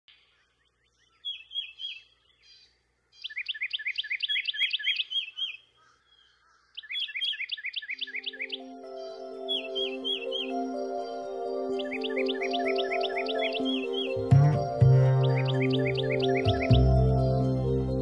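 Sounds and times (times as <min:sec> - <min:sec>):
songbird trilling: 0:00.3 - 0:14.4, 0:15.0 - 0:16.8
soft music: 0:08.0 - 0:18.0.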